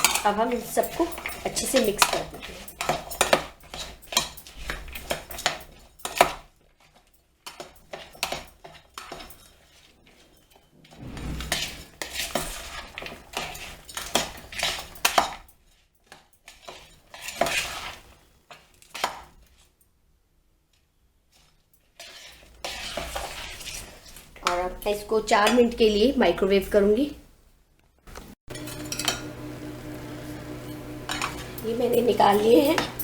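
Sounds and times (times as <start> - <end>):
spoon scraping a bowl: 0.0 - 6.3, 16.5 - 18.2, 22.0 - 24.6, 30.2 - 33.0.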